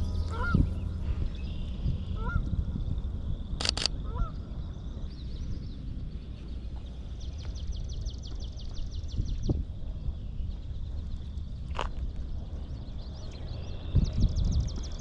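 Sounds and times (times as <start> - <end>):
geese honking: 0.0 - 3.1, 4.0 - 4.6
low steady rumble: 0.0 - 15.0
sharp clicks: 3.6 - 4.0.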